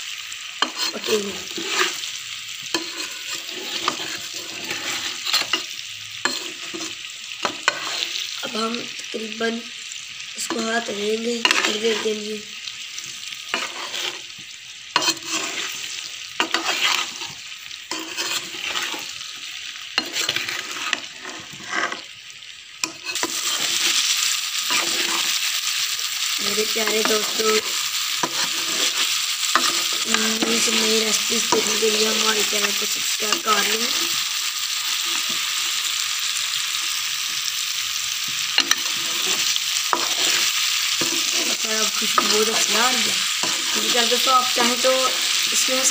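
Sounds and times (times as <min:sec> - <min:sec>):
frying in hot oil sizzling: 0:00.0 - 0:45.9
ladle scraping and knocking pan: 0:40.0 - 0:40.4.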